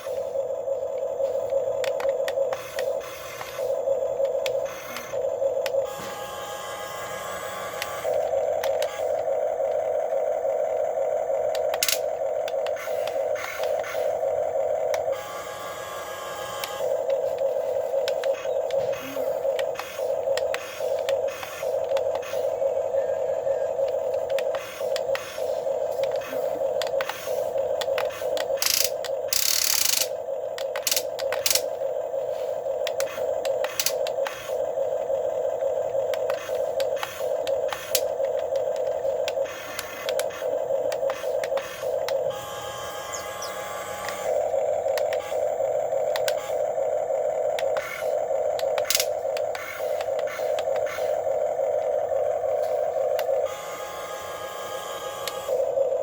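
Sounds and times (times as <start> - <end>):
small electric motors whirring: 0.0 - 56.0
clicks: 0.9 - 6.1, 7.5 - 9.9, 11.5 - 14.1, 16.5 - 22.4, 23.7 - 31.7, 32.8 - 34.6, 36.0 - 45.4, 46.0 - 46.6, 47.6 - 51.2.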